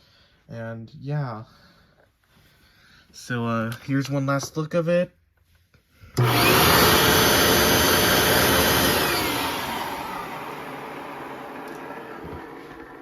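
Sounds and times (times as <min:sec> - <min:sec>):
vacuum cleaner running: 0:06.2 - 0:13.0.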